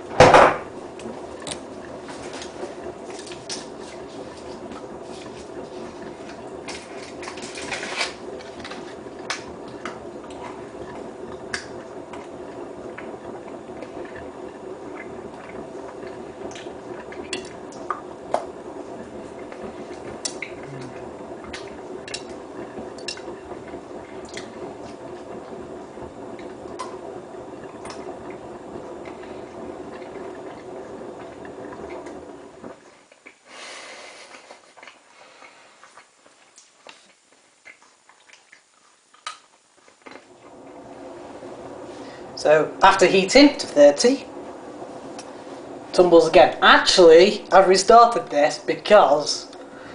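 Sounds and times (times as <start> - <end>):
motor hum: 0.0 - 49.9.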